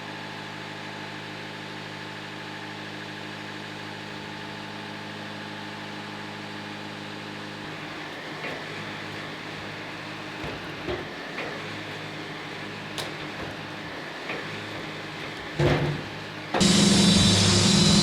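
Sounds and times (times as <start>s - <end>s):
engine idling: 16.6s - 18.0s.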